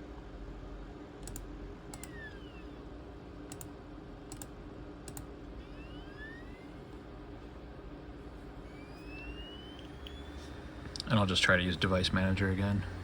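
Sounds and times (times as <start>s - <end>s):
computer mouse double-clicking: 1.2s - 2.1s, 3.5s - 3.7s, 4.3s - 4.5s, 5.1s - 5.3s.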